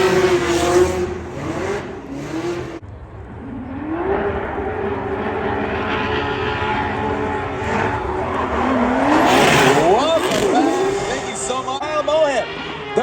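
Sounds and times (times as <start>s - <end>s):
car engines revving hard: 0.0s - 13.0s.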